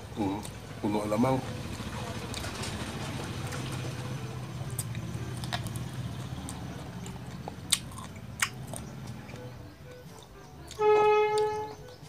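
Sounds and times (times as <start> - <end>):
wet chewing clicks and smacks: 2.0 - 2.8, 4.6 - 12.0.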